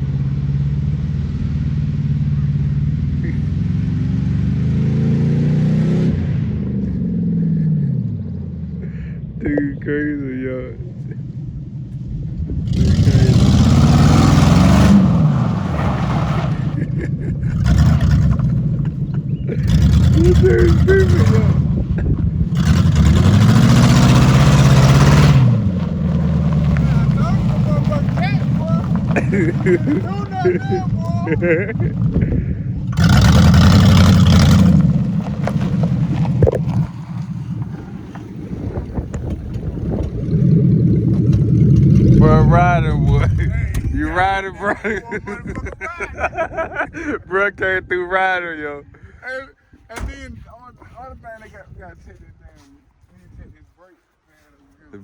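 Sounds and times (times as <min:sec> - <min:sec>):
car engine accelerating hard: 0:00.0 - 0:09.4, 0:11.0 - 0:44.5.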